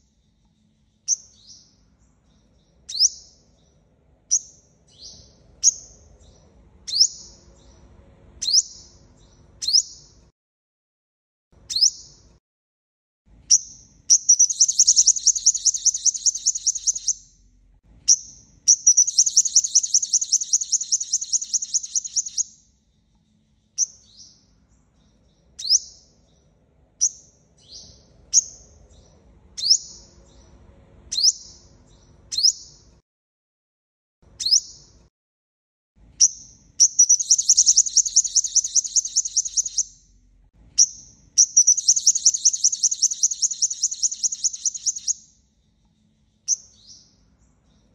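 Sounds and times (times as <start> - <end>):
bird chip notes: 14.3 - 17.2
bird trilling high notes: 14.3 - 17.2, 18.9 - 22.4, 37.0 - 39.9, 41.6 - 45.2.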